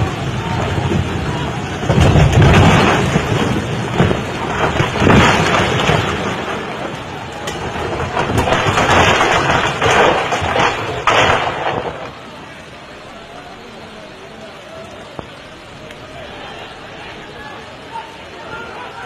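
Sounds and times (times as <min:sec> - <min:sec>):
crashing and rushing water: 0:00.0 - 0:19.0.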